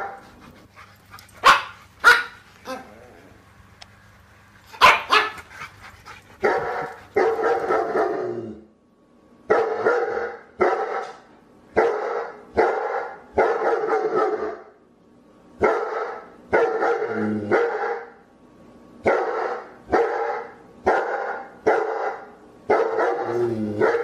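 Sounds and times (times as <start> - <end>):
dog barking: 1.4 - 2.8, 4.8 - 5.4, 6.4 - 8.2, 9.5 - 11.2, 11.8 - 14.7, 15.6 - 18.1, 19.0 - 24.0.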